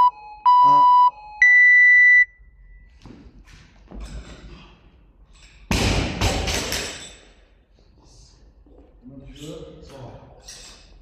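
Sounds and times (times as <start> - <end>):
timer beep: 0.0 - 2.8.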